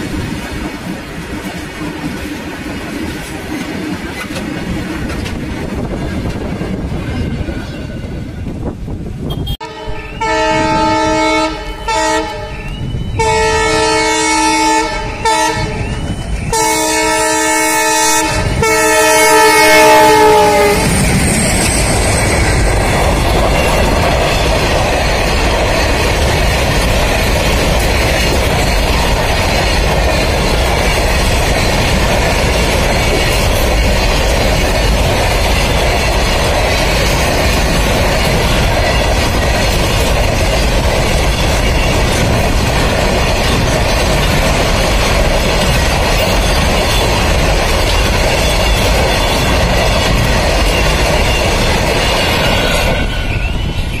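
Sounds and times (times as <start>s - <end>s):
train wheels rumbling on rails: 0.0s - 54.0s
train horn blasts: 9.2s - 21.0s.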